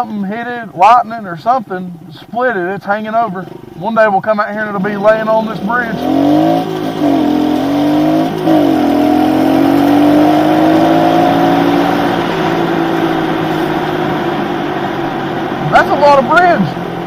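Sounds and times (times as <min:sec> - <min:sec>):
small motorbike engine revving: 0:05.9 - 0:12.2.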